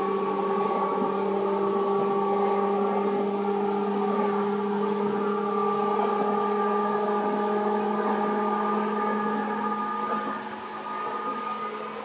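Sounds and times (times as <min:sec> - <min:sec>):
electric train motor hum: 0:00.0 - 0:12.0
train rolling noise: 0:00.0 - 0:12.0.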